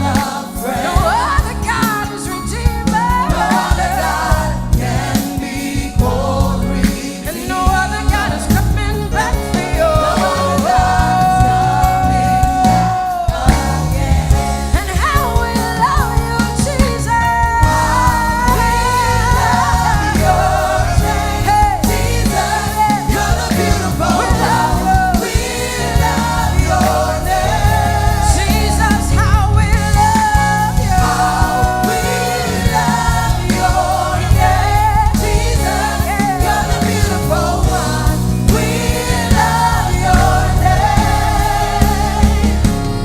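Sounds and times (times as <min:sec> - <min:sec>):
band with bass and drums: 0:00.0 - 0:43.0
singers holding sustained notes: 0:17.6 - 0:43.0.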